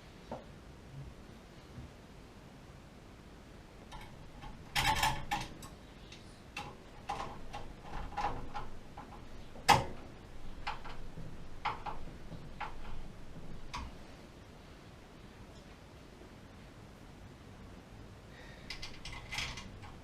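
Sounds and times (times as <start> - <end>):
tools and hard parts clicking: 3.9 - 14.0, 18.7 - 20.0.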